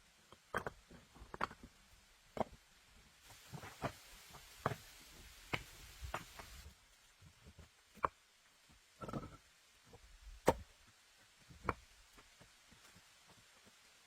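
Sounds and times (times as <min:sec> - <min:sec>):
soft hiss: 0:03.0 - 0:07.5.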